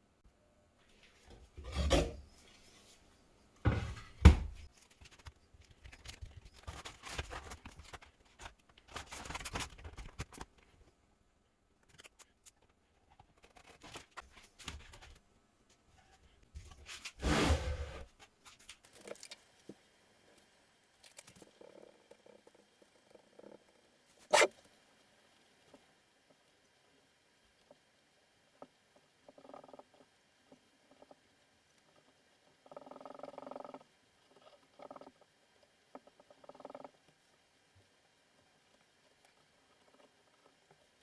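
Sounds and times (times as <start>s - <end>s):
scraping and rubbing: 16.7s - 18.2s.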